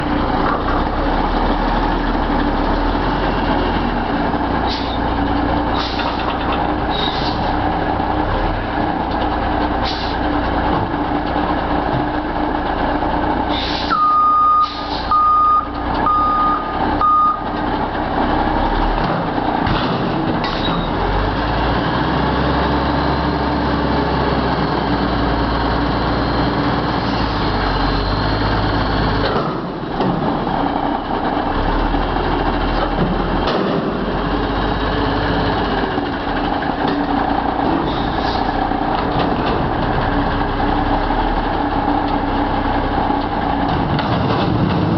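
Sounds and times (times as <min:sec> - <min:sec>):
garbage truck diesel engine running: 0:00.0 - 0:44.9
short air hisses: 0:13.5 - 0:13.9, 0:14.6 - 0:15.1
reversing beeps: 0:13.9 - 0:17.5.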